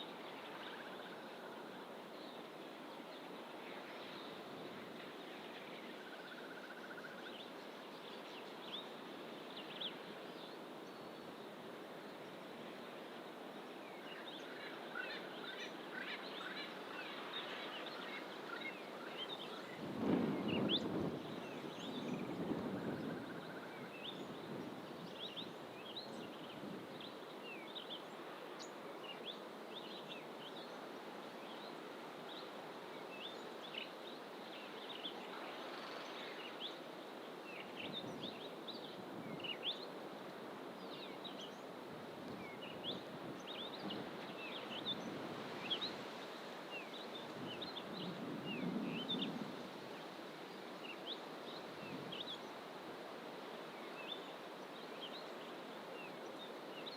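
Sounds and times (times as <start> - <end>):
background hiss: 0.0 - 56.9.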